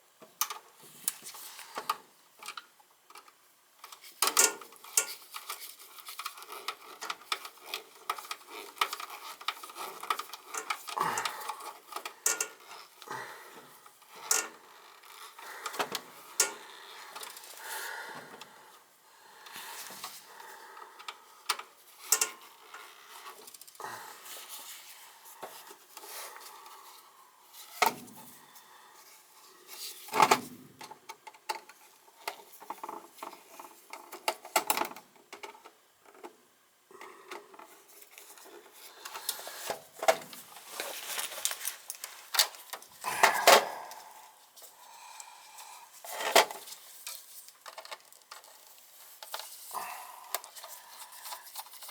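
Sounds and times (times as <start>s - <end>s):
tools and wiring being handled: 0.4s - 13.1s, 13.8s - 18.5s, 21.0s - 28.4s, 37.4s - 44.7s, 45.6s - 51.9s.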